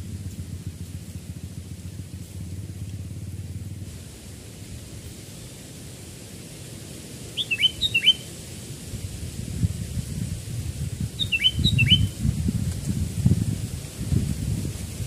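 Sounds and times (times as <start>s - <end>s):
low rumbling noise: 0.0s - 15.0s
bird whistled calls: 7.4s - 8.3s, 11.2s - 12.2s.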